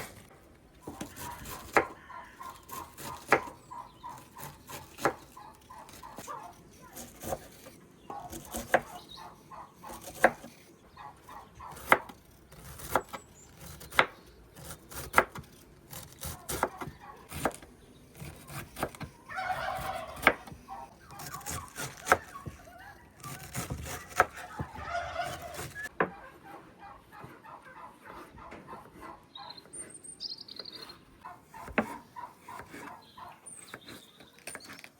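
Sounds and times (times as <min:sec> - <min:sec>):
chopping on wooden board: 0:00.8 - 0:06.4, 0:07.0 - 0:09.0, 0:09.9 - 0:10.6, 0:11.6 - 0:26.2, 0:31.6 - 0:33.0
turkey gobbling: 0:01.2 - 0:04.4, 0:19.3 - 0:23.2, 0:24.4 - 0:29.6.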